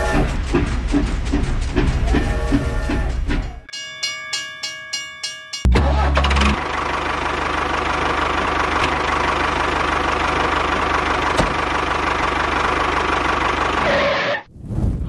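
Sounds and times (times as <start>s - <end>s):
small engine idling with knocking: 0.0s - 3.6s, 6.0s - 14.0s.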